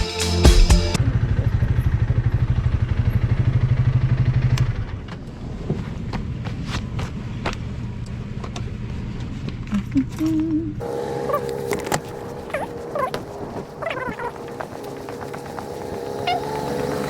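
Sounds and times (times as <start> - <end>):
motorcycle engine idling: 1.0 - 5.1.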